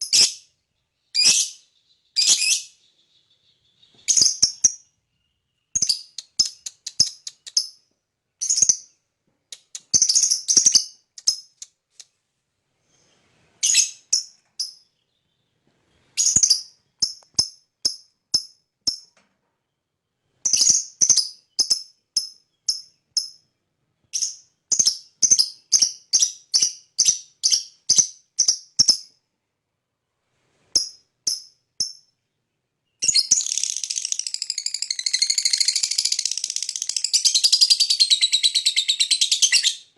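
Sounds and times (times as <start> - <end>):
lovebird chirping: 0.0 - 12.1, 12.8 - 19.1, 19.7 - 29.2, 30.6 - 39.9
rasping bird chatter: 5.8 - 7.8, 33.1 - 39.8.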